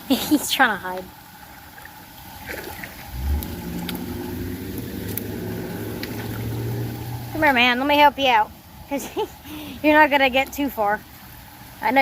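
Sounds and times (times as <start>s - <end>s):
motor engine humming: 2.1s - 8.4s.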